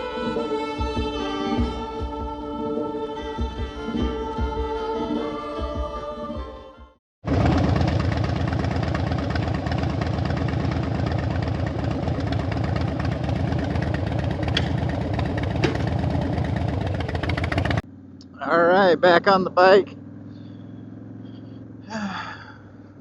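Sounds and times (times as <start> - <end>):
motorcycle engine idling: 7.3 - 23.0.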